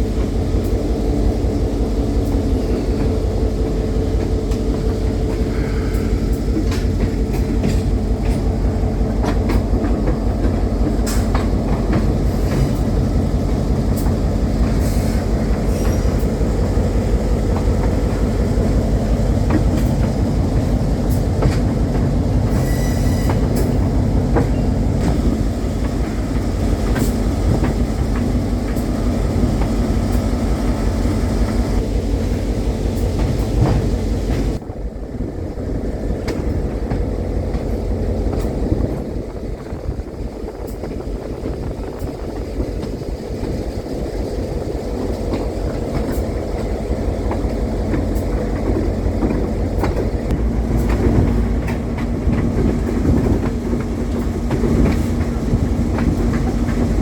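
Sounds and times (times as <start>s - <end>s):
train rumbling on track: 0.0s - 57.0s
wheel squeal: 22.5s - 23.8s.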